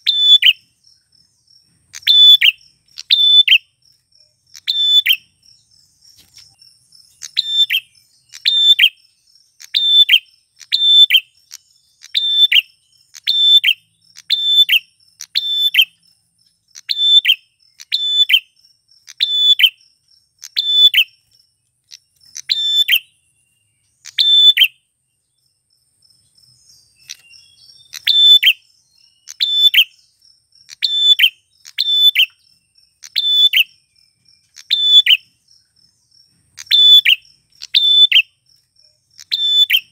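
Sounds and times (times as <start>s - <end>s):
bird calling: 0.0s - 0.8s, 1.7s - 5.4s, 6.1s - 16.0s, 16.7s - 19.8s, 20.4s - 23.2s, 23.8s - 24.8s, 26.7s - 33.8s, 34.5s - 35.4s, 36.5s - 38.4s, 39.1s - 39.9s.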